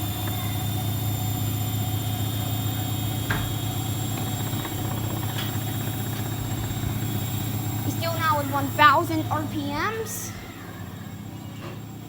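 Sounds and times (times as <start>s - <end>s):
washing machine spinning hum: 0.0s - 12.0s.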